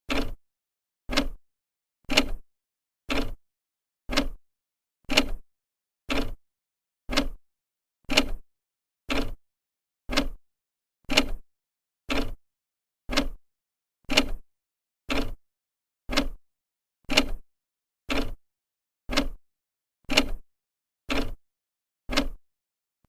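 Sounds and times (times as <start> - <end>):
clock ticking: 0.1 - 0.4, 1.1 - 1.4, 2.1 - 2.4, 3.1 - 3.4, 4.1 - 4.4, 5.1 - 5.4, 6.1 - 6.4, 7.1 - 7.4, 8.1 - 8.4, 9.1 - 9.4, 10.1 - 10.4, 11.1 - 11.4, 12.1 - 12.4, 13.1 - 13.4, 14.1 - 14.4, 15.1 - 15.4, 16.1 - 16.4, 17.1 - 17.4, 18.1 - 18.4, 19.1 - 19.4, 20.1 - 20.4, 21.1 - 21.4, 22.1 - 22.4.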